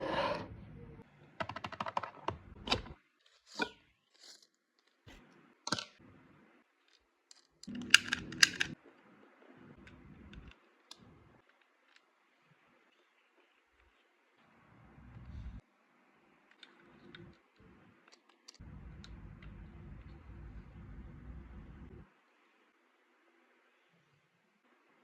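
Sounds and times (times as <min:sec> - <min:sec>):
packaging clicks: 0:07.0 - 0:08.8.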